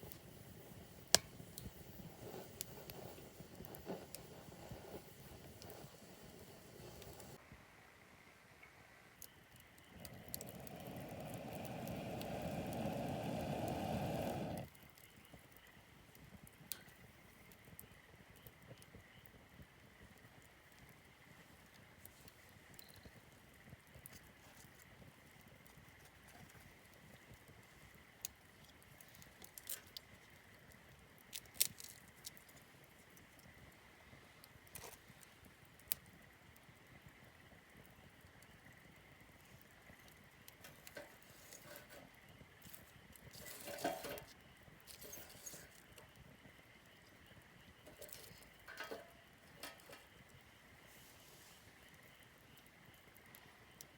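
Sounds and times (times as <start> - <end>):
campfire crackling and popping: 0.0 - 7.4, 9.2 - 51.0, 51.7 - 53.9
low rushing blowing noise: 10.1 - 14.6.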